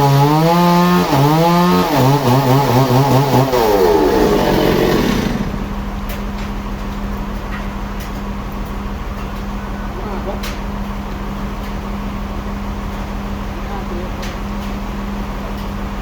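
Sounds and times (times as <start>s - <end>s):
saw cutting through wood: 0.0s - 6.0s
steady machine hum: 1.9s - 6.7s.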